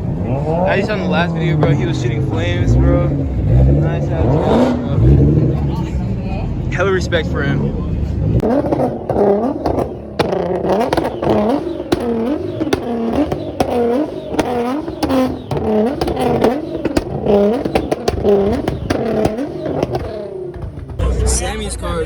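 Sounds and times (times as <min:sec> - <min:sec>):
car engine revving: 0:00.0 - 0:22.0
exhaust pops and crackles: 0:06.7 - 0:21.7.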